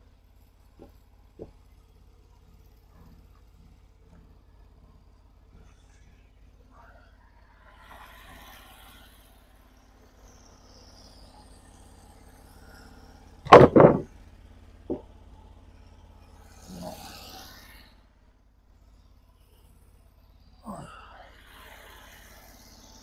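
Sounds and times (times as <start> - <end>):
light wooden knock: 13.5 - 14.1
wooden boards thudding: 13.5 - 14.1.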